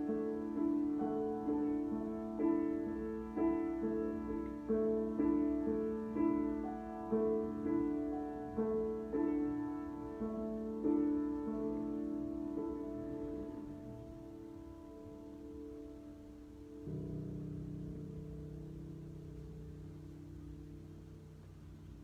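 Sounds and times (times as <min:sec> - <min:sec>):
gentle solo piano: 0:00.0 - 0:22.0.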